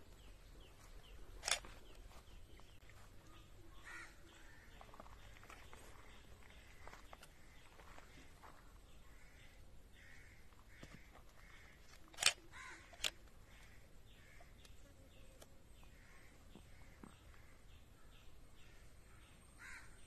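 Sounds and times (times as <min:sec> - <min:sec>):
bird calling: 0:00.0 - 0:20.0
sharp clicks: 0:01.4 - 0:02.0, 0:11.9 - 0:13.4.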